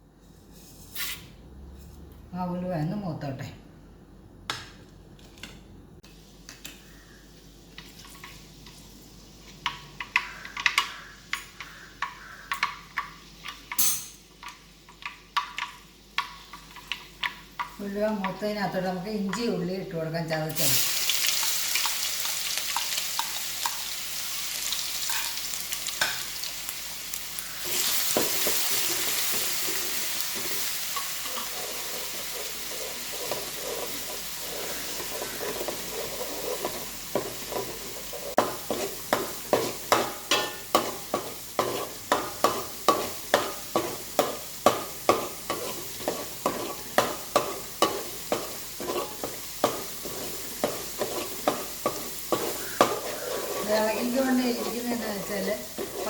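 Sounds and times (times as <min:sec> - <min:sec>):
garlic and ginger sizzling in oil: 0:06.9 - 0:56.0
spoon scraping a pan: 0:27.5 - 0:56.0.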